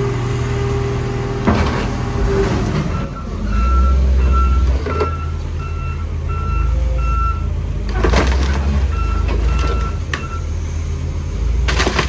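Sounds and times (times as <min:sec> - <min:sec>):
heavy diesel machinery running: 0:00.0 - 0:12.0
reversing alarm beeping: 0:02.9 - 0:07.5, 0:08.9 - 0:10.6.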